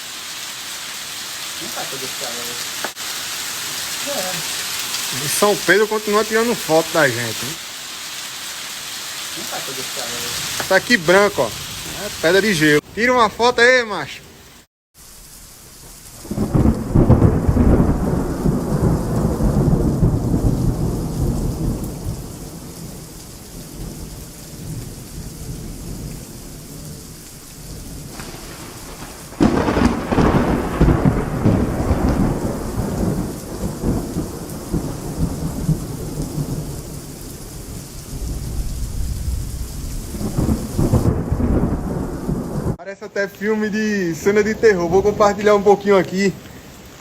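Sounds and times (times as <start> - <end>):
heavy rain and hail: 0.0 - 47.0
thunder rolling: 15.9 - 42.8.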